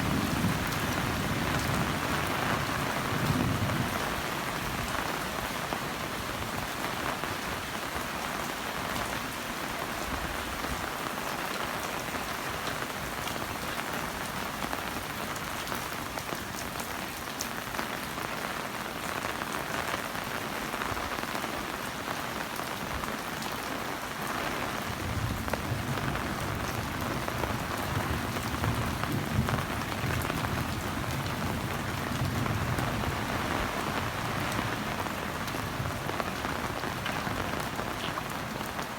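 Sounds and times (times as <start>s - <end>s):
heavy rain falling: 0.0s - 38.9s
raindrop taps: 36.2s - 38.8s.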